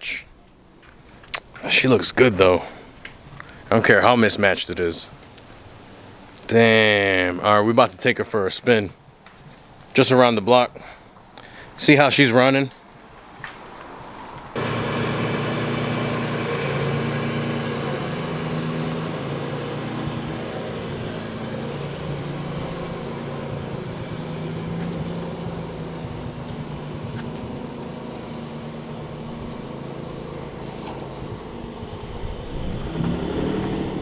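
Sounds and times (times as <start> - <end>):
car engine running: 14.6 - 34.0.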